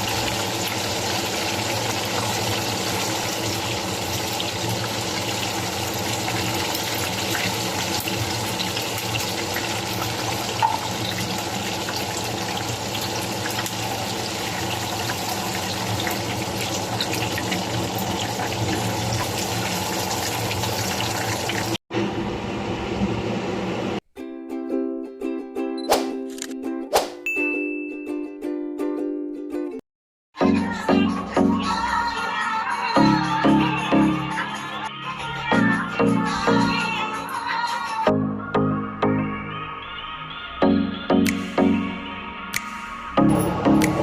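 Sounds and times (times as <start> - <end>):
water running from a tap: 0.0 - 21.8.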